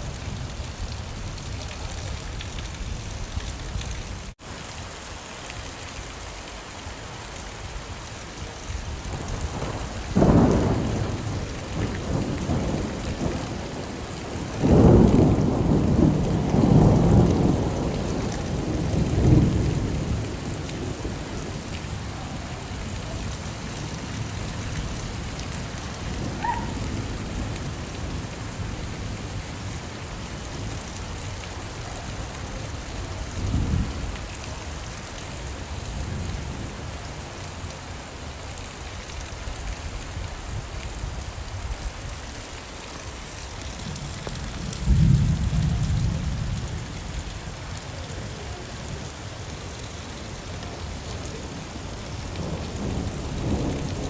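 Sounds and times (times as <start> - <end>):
steady rain: 0.0 - 54.0
thunder clap and rumble: 8.9 - 29.8, 32.1 - 34.4, 43.8 - 47.2, 52.1 - 54.0.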